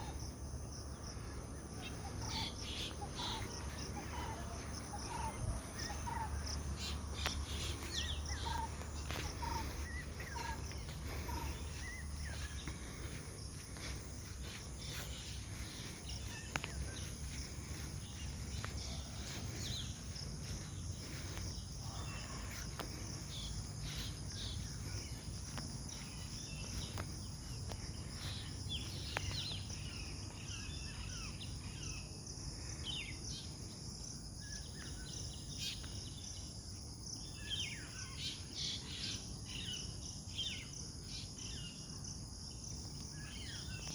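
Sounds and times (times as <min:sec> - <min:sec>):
crickets droning: 0:00.0 - 0:43.9
birds chirping and calling: 0:01.1 - 0:32.0.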